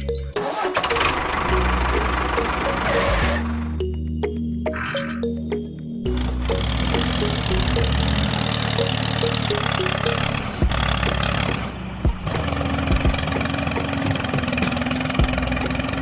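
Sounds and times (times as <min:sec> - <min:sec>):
small engine running: 0:06.1 - 0:16.0.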